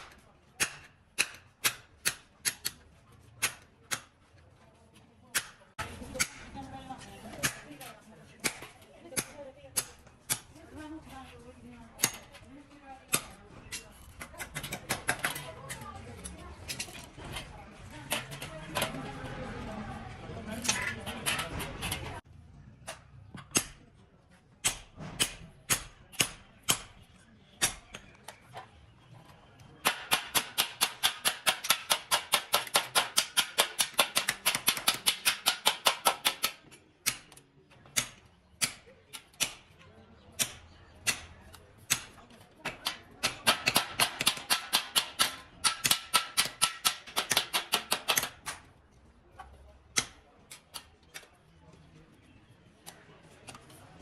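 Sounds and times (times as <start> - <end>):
rapid sharp hammering strikes: 0.6 - 2.8, 24.6 - 27.0, 29.8 - 37.3, 41.9 - 48.6.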